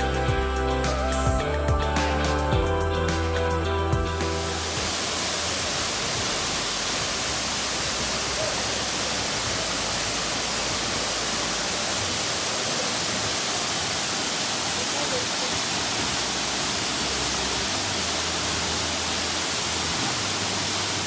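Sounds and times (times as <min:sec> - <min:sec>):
background music: 0:00.0 - 0:11.9
waterfall rushing: 0:03.2 - 0:21.0.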